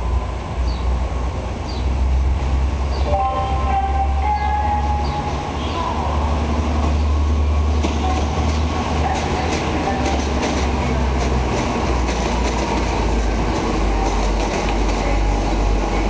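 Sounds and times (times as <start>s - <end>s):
train low rumble: 0.0s - 16.0s
wheels clicking over rails: 7.7s - 15.7s.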